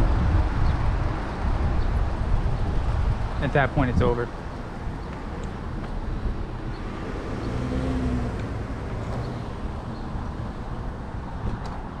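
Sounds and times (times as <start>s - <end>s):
road traffic rumble: 0.0s - 12.0s
vehicle passing: 2.7s - 11.4s.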